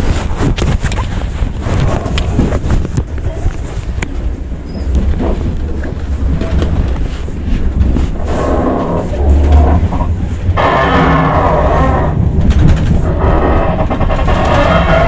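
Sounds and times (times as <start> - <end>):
train carriage low rumble: 0.0 - 15.0
knocks and rattles: 4.8 - 15.0.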